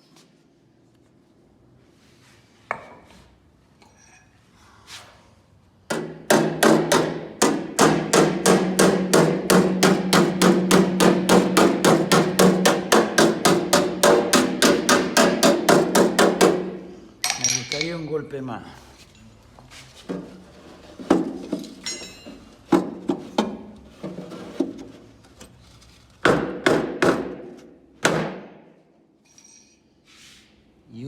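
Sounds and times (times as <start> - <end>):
hammering on sheet steel: 5.9 - 16.9, 26.2 - 28.7.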